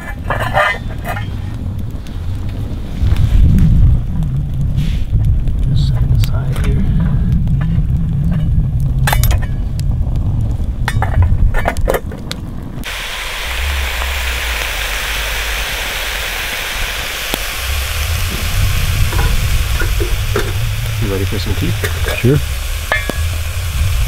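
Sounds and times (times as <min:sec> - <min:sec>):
low rumble: 0:00.0 - 0:24.0
food sizzling in a pan: 0:12.8 - 0:24.0.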